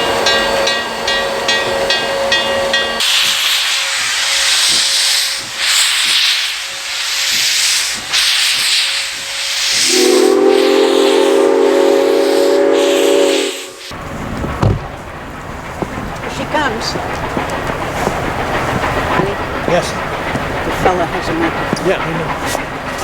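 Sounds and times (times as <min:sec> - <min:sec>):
steam locomotive venting steam: 0:00.0 - 0:23.0
steam whistle blast: 0:09.4 - 0:13.9.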